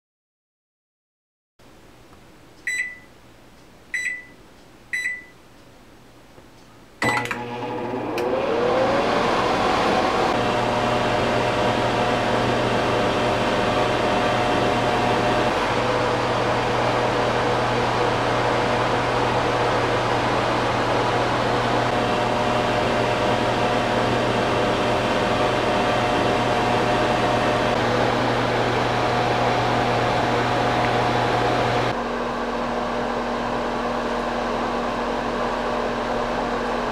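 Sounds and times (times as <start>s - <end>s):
microwave keypad beeping: 2.7s - 3.1s, 3.9s - 5.4s, 7.0s - 7.4s
microwave running hum: 3.9s - 5.5s, 7.0s - 36.9s
microwave click: 7.0s - 8.4s.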